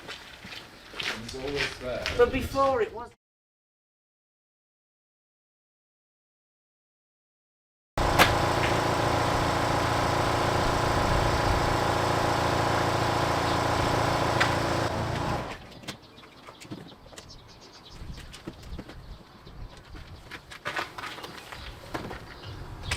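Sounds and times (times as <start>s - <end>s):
starter motor cranking engine: 8.0s - 15.6s
faint birds: 15.6s - 22.9s.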